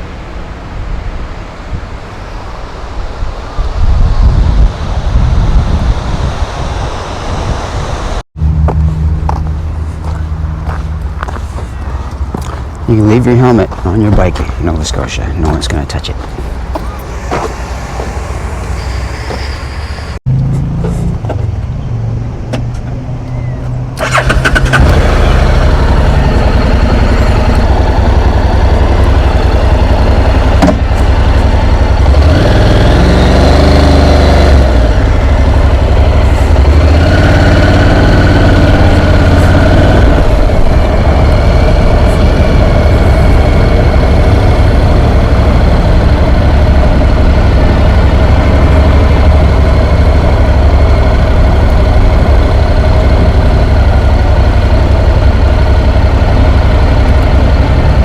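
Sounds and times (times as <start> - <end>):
motorcycle engine running: 24.0 - 58.0.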